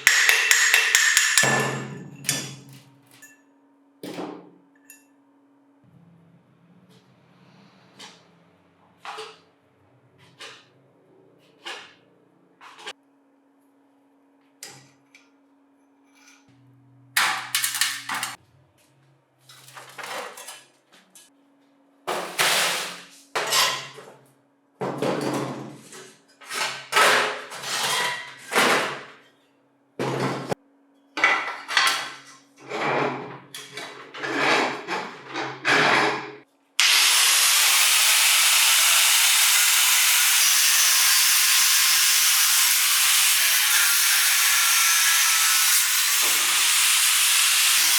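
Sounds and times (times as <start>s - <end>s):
knocks on metal parts: 0.0s - 2.8s.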